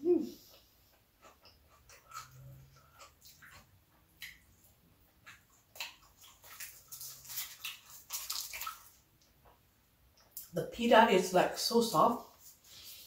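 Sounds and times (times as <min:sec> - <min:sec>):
wet chewing clicks and smacks: 0:00.5 - 0:10.5.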